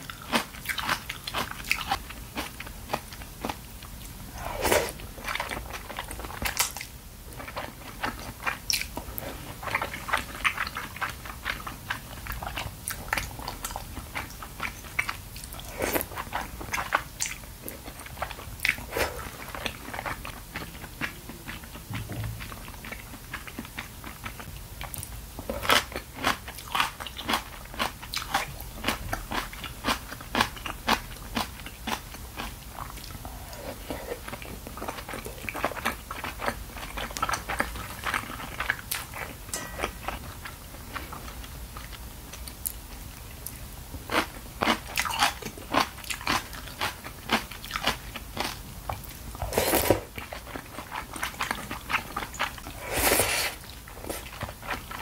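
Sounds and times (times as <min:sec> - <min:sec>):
wet chewing: 0:43.4 - 0:55.0.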